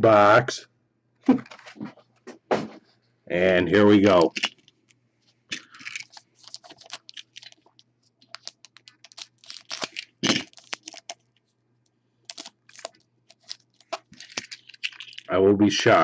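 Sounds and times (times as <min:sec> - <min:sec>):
faint steady hum: 0:00.0 - 0:16.0
wrappers tearing and crinkling: 0:04.0 - 0:04.9, 0:05.5 - 0:11.3, 0:12.3 - 0:15.3.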